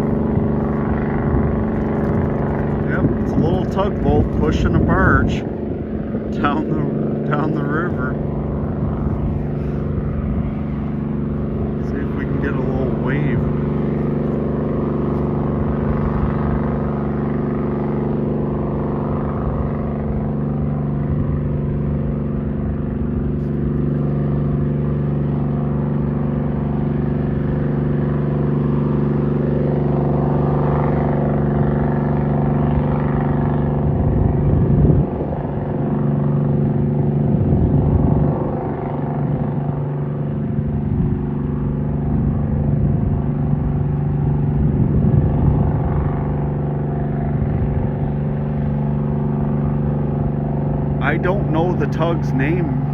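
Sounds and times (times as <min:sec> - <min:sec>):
engine droning: 0:00.0 - 0:52.9.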